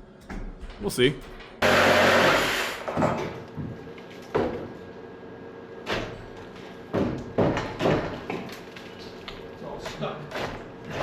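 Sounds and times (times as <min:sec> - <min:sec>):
wooden knocks on joists: 0:06.9 - 0:08.5.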